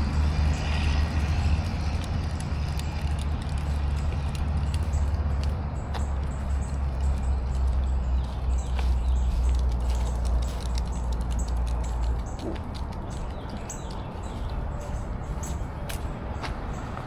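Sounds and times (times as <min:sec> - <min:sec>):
footsteps on dirt trail: 0:00.0 - 0:17.0
wind rumble on microphone: 0:00.0 - 0:17.0.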